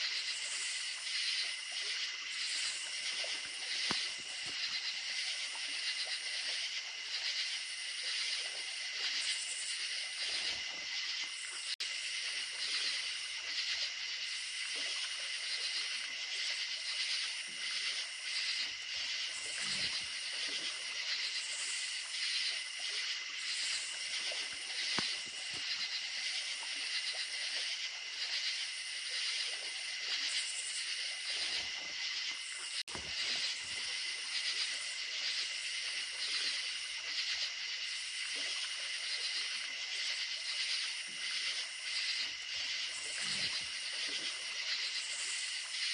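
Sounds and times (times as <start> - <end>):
crickets chirping: 0.0 - 45.9
running creek water: 0.0 - 45.9.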